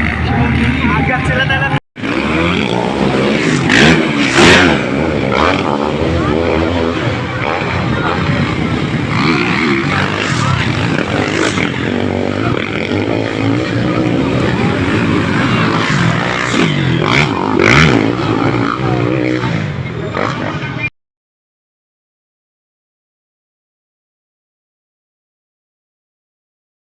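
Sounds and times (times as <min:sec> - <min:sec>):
dirt bike engines revving: 0:00.0 - 0:20.9
voices: 0:00.0 - 0:20.9.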